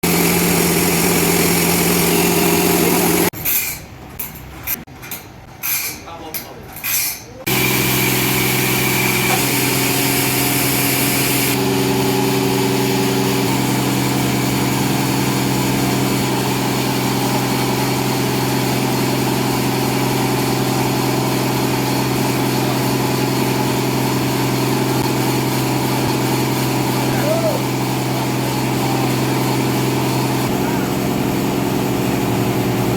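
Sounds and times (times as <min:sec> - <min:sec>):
engine-driven saw running: 0:00.0 - 0:03.3, 0:07.5 - 0:32.9.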